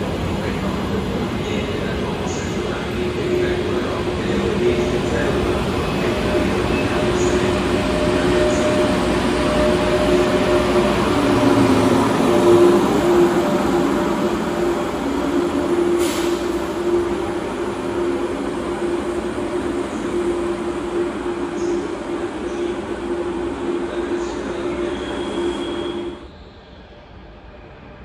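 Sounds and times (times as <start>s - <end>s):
train wheels rumbling on rails: 0.0s - 26.0s
brief hiss: 16.0s - 16.6s.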